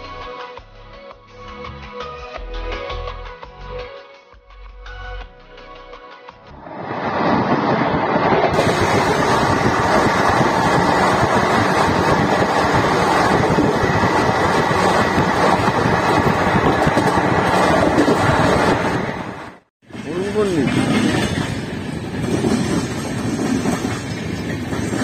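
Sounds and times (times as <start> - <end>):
train wheels roaring on rails: 6.6 - 25.0.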